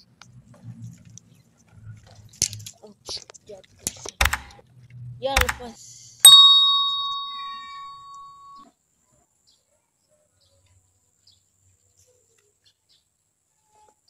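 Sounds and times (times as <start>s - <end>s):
ding sound effect: 6.3s - 8.6s.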